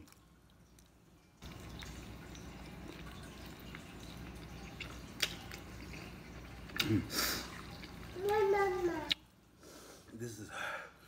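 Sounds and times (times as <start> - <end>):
man chewing wetly: 0.0 - 8.2.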